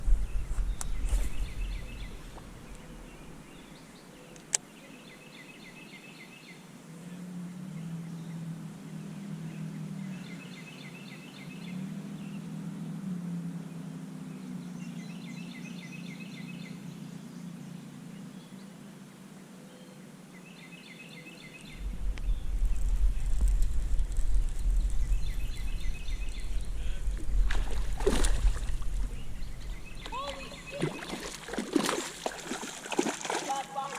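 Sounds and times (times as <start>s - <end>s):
faint low hum: 21.6s - 33.4s
songbird singing rapid high notes: 29.1s - 31.2s.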